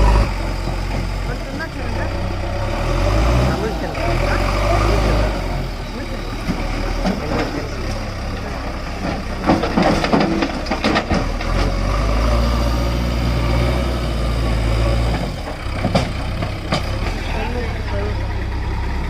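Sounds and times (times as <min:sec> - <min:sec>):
heavy diesel engine rumbling: 0:00.0 - 0:19.0
clanks and knocks: 0:06.3 - 0:08.0, 0:08.8 - 0:11.9, 0:15.0 - 0:17.2.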